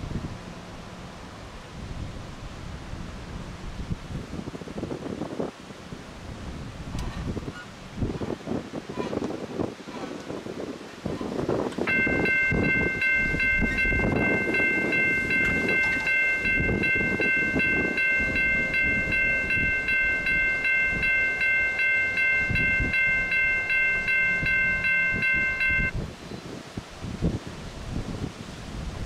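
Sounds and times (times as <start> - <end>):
freight train rumble: 0.0 - 29.0
locomotive air horn chord: 11.9 - 25.9.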